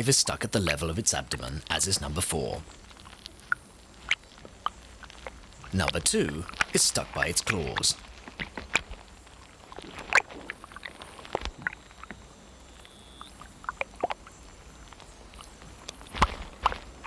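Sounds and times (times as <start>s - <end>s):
soft watery sounds: 0.0s - 17.0s.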